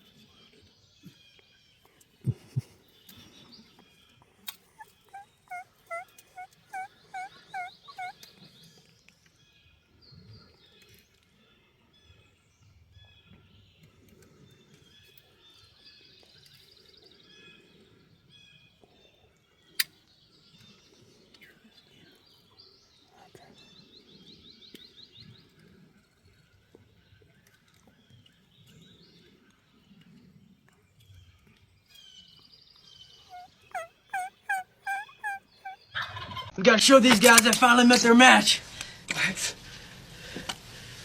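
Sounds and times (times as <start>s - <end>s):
turkey yelps: 4.7s - 8.2s, 33.3s - 36.4s
faint songbird trills: 4.8s - 8.2s, 33.3s - 35.8s.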